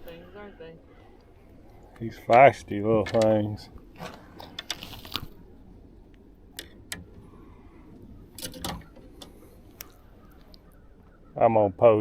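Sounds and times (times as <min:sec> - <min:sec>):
low steady rumble: 0:00.0 - 0:12.0
knocks and rattles in a boat: 0:08.4 - 0:09.4.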